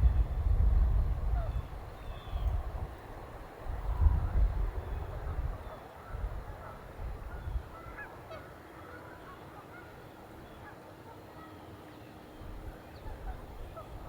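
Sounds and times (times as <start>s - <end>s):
wind rumble: 0.0s - 5.6s.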